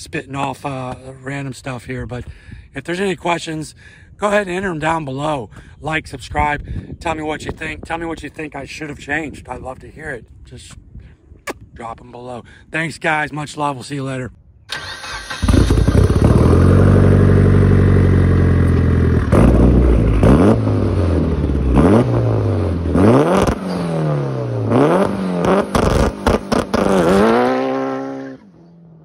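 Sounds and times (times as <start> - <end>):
car engine revving: 14.8 - 28.7
exhaust pops and crackles: 25.4 - 27.2.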